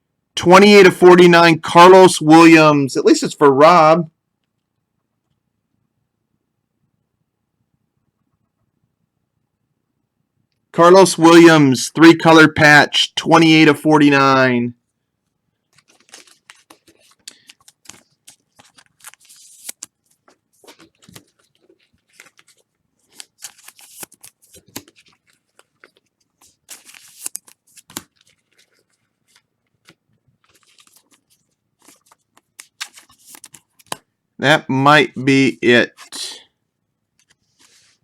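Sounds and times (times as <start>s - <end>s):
cards and packaging rustling: 15.6s - 34.1s, 35.8s - 36.4s, 37.1s - 38.0s.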